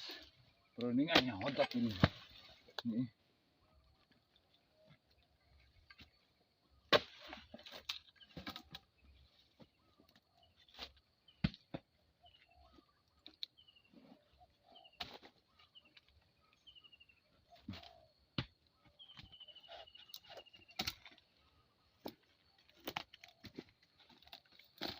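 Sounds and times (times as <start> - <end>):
small birds chirping: 0.0 - 24.8
bird trill: 12.2 - 21.8.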